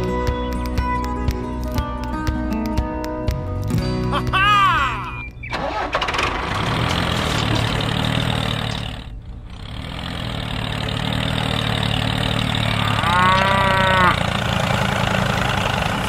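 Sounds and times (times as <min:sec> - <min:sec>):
tractor engine running: 0:00.0 - 0:16.0
cow mooing: 0:12.6 - 0:14.3.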